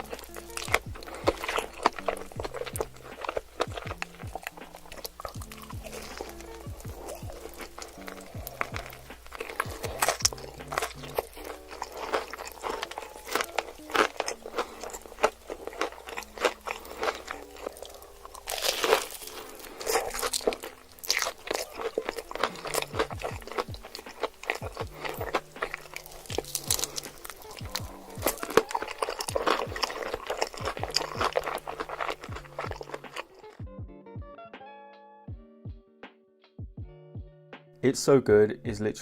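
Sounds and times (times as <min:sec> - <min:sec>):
crunchy chewing: 0:00.0 - 0:33.6
soft background music: 0:00.0 - 0:39.0.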